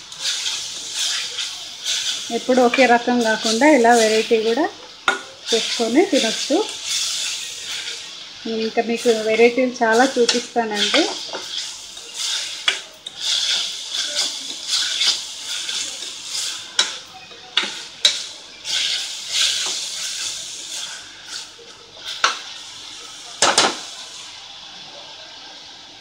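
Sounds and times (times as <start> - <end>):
carrot sizzling in oil: 0.0 - 26.0
spoon scraping a pan: 0.1 - 22.7
spoon tapping against a pan: 5.0 - 5.3.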